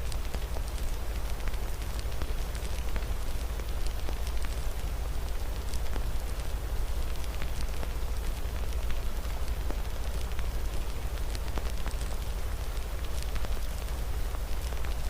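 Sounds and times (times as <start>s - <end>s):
rain hiss: 0.0s - 15.0s
wood fire crackling and popping: 0.0s - 15.0s.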